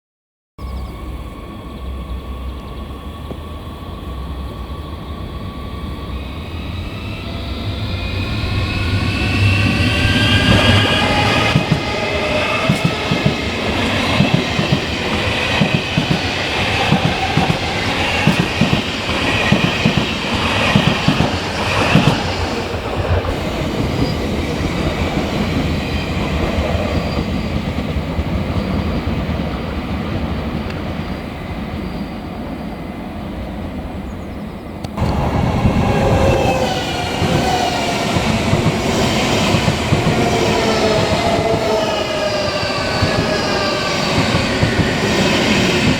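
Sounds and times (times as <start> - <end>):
train whine gliding in pitch: 0.6 - 45.9
train wheels clattering on rails: 8.2 - 31.2, 34.9 - 45.9.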